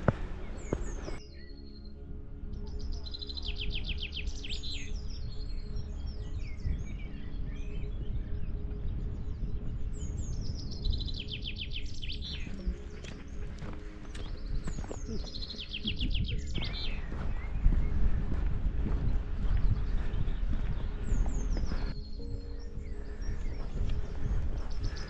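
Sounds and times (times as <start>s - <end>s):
bird chirps: 0.0s - 25.0s
songbird singing: 0.0s - 25.0s.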